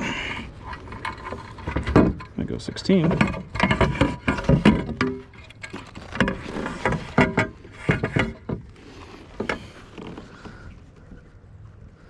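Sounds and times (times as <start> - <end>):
knocks and clatters on kayak: 0.8 - 10.8.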